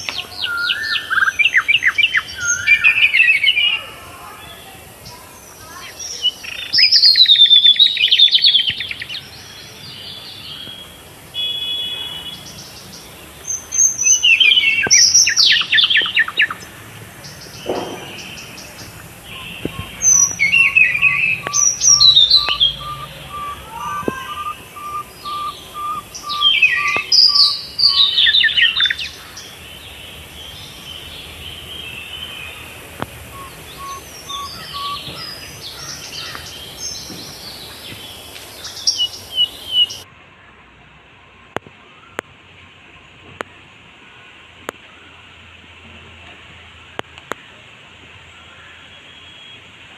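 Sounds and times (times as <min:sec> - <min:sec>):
bird short low repeated notes: 0:17.6 - 0:28.0
bird whistle ending in trill: 0:19.3 - 0:29.0, 0:33.3 - 0:35.4.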